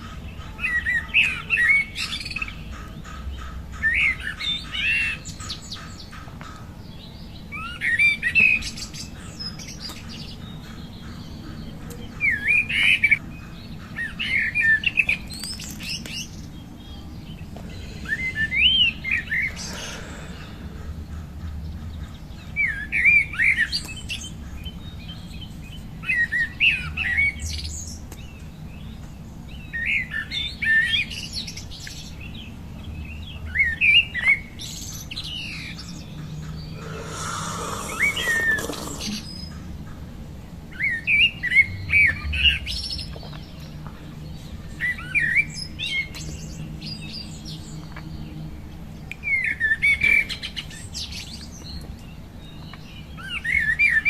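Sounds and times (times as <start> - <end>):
bird chirping: 6.9 - 39.9.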